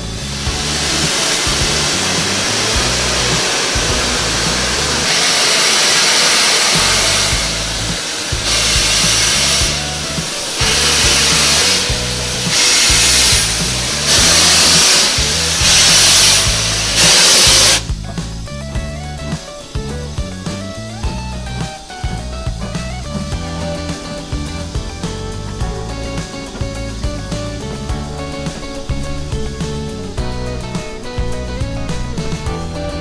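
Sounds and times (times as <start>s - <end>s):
steam locomotive blasts: 0.0s - 18.1s
background music with bass: 0.0s - 33.0s.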